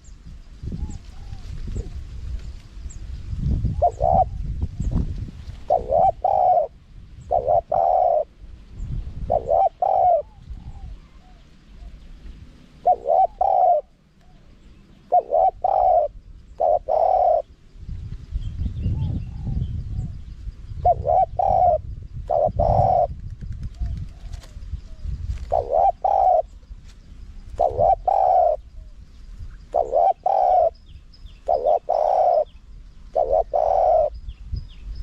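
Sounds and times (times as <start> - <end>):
dove cooing: 0.8 - 2.0, 3.6 - 5.0, 5.6 - 8.4, 9.2 - 17.6, 20.8 - 26.7, 27.4 - 29.0, 29.6 - 34.3.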